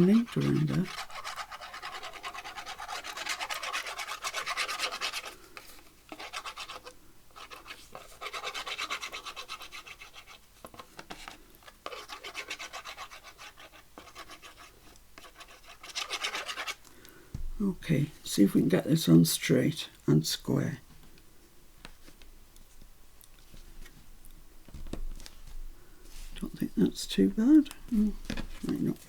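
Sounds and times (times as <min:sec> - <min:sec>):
scratchy rubbing on paper tag: 0:00.0 - 0:16.8.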